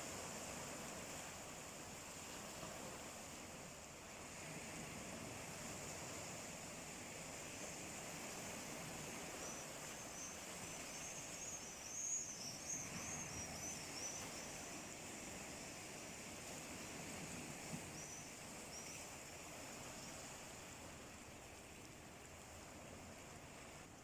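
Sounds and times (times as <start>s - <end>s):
sea waves washing: 0.0s - 24.0s
small bird chirping: 9.4s - 14.5s.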